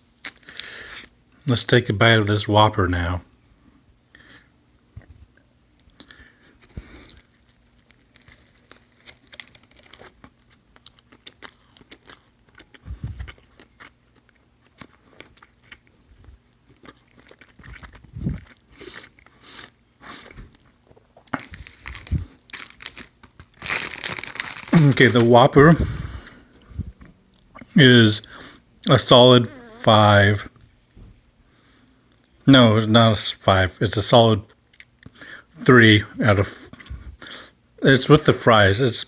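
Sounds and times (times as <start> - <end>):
person chewing a hamburger: 0.2 - 1.2, 5.8 - 25.2, 34.5 - 35.5, 36.7 - 37.4.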